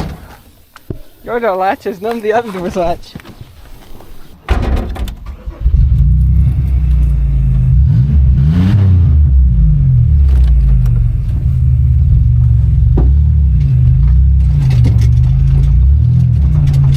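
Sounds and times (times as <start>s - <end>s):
loud car engine revving: 5.5s - 16.9s.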